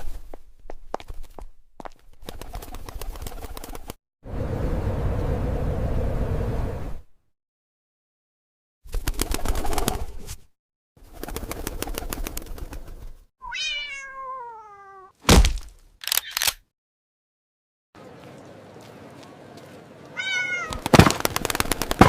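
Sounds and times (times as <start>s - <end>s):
cat meowing: 13.4s - 15.2s, 20.2s - 20.9s
sharp thump: 15.3s - 15.8s
rapid clicking rustling noise: 20.7s - 22.0s.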